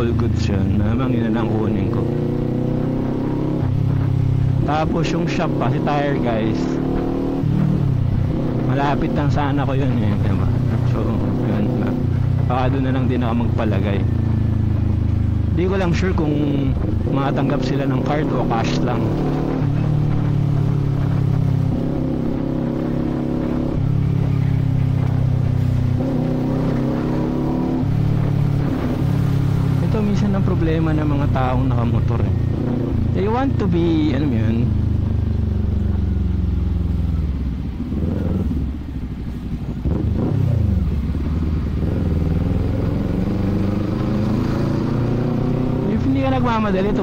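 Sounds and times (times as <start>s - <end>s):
motorcycle engine running: 0.0s - 47.0s.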